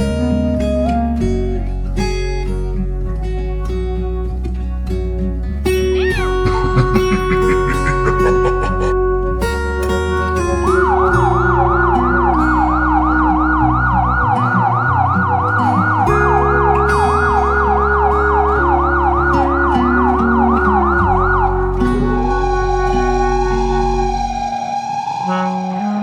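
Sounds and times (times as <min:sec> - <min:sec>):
background music with bass line: 0:00.0 - 0:26.0
fast yelping siren: 0:05.8 - 0:09.0, 0:10.8 - 0:26.0.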